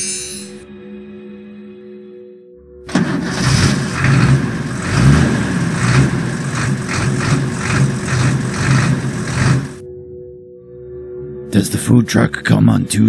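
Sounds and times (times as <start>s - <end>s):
truck engine rumbling: 2.9s - 9.8s.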